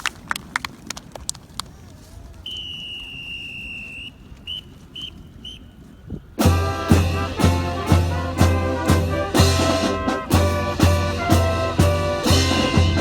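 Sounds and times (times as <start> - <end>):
brass band playing: 6.4 - 13.0.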